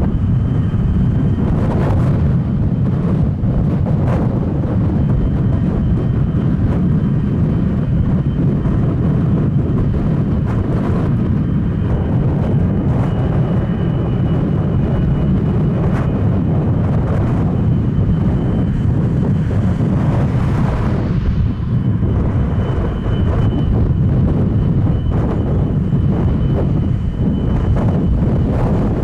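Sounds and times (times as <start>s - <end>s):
jet engines rumbling: 0.0s - 29.0s
faint high whine: 17.6s - 29.0s.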